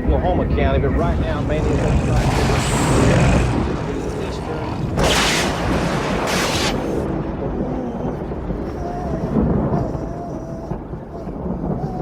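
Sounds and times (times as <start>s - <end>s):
low storm rumble: 0.0s - 12.0s
wavering howl of wind: 0.0s - 12.0s
hissing gust of wind: 1.1s - 10.0s.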